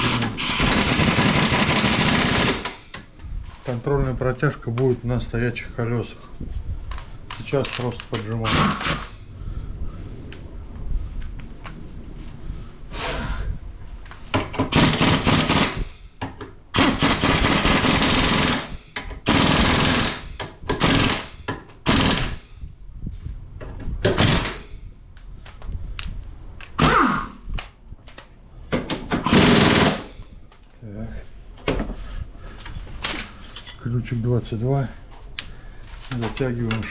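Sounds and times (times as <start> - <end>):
impact wrench rattling: 0.0 - 3.0, 16.8 - 22.4, 29.1 - 30.2.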